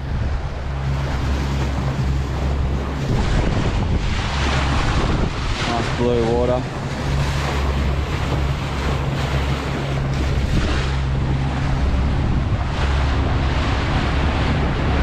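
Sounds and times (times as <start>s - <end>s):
boat engine humming: 0.0s - 15.0s
water rushing past hull: 0.0s - 15.0s
wind buffeting microphone: 0.0s - 15.0s.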